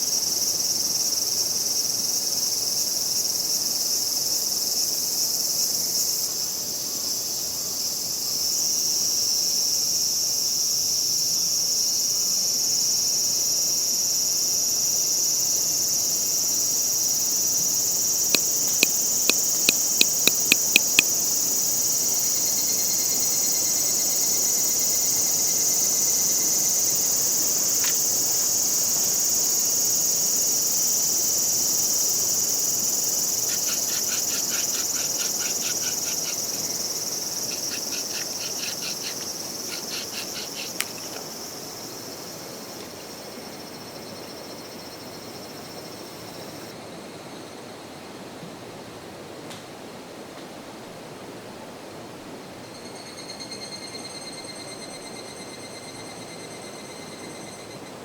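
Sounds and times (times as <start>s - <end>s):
insects trilling: 12.9s - 46.7s
sharp clicks: 18.4s - 21.1s.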